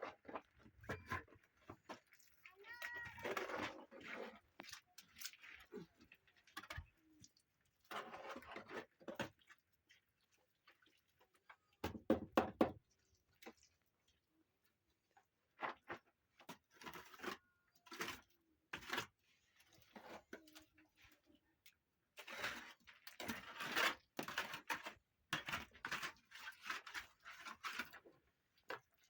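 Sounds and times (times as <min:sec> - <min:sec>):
objects knocking and clattering: 0:11.8 - 0:12.8.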